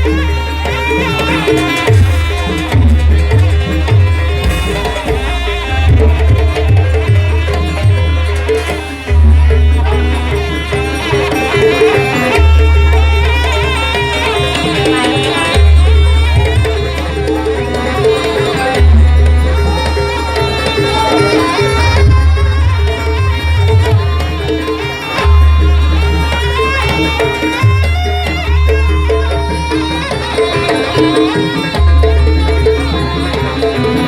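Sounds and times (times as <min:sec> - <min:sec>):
hand drums and percussion: 0:00.0 - 0:34.0
wavering high melody: 0:00.0 - 0:34.0
deep bass notes: 0:01.9 - 0:10.5.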